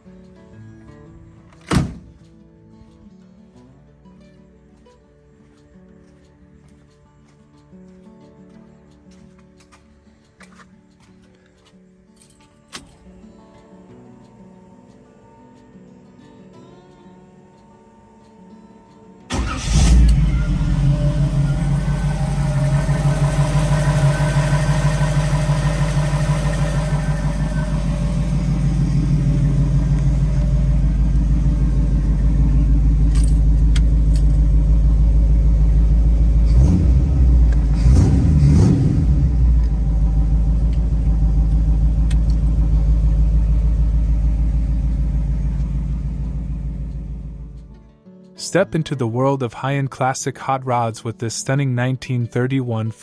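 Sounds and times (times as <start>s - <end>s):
car engine idling and revving: 19.3s - 47.8s.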